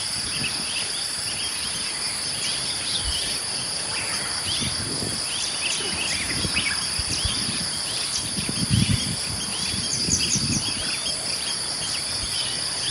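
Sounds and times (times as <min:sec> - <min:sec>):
high-pitched insect drone: 0:00.0 - 0:12.9.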